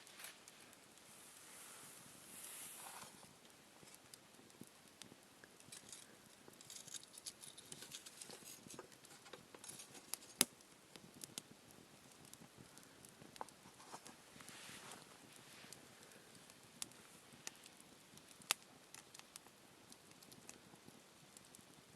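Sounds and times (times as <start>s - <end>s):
campfire crackling: 0.0s - 21.9s
sharp snap of fire: 10.3s - 11.5s, 16.0s - 20.6s.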